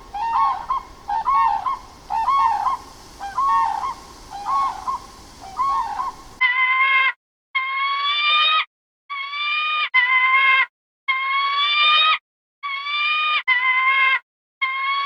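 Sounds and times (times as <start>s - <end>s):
high rising animal cries: 0.0s - 6.4s.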